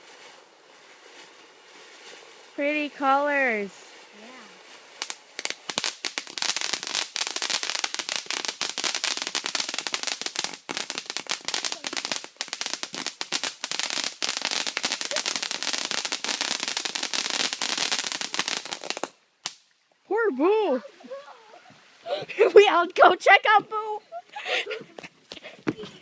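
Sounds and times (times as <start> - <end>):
firework crackling: 0.0 - 19.7.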